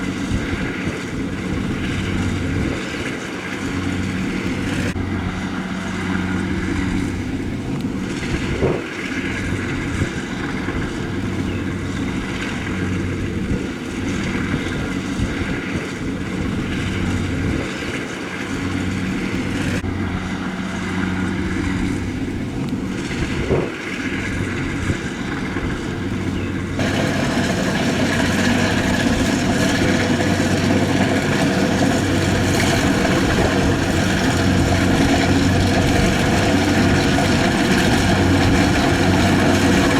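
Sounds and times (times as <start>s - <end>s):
combine harvester engine running: 0.0s - 39.9s.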